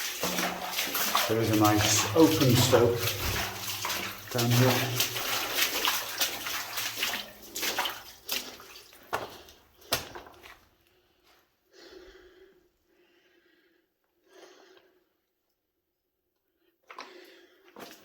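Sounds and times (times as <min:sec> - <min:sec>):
legs wading through water: 0:00.0 - 0:10.7.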